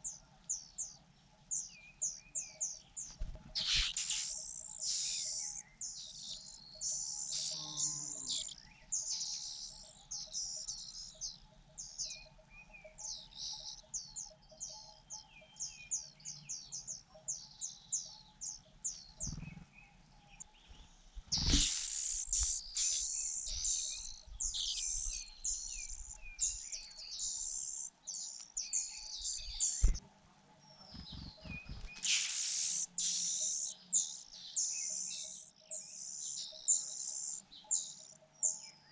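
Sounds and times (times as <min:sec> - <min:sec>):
nestlings begging chirps: 0:02.0 - 0:11.1, 0:18.9 - 0:19.7, 0:20.4 - 0:30.0, 0:30.8 - 0:38.6.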